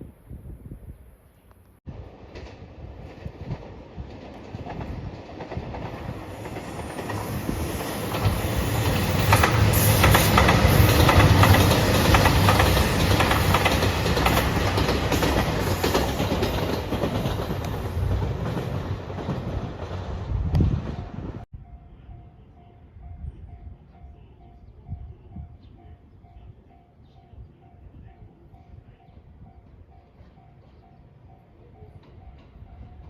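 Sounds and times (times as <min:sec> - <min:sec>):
train wheels clacking over rail joints: 0:02.3 - 0:20.0.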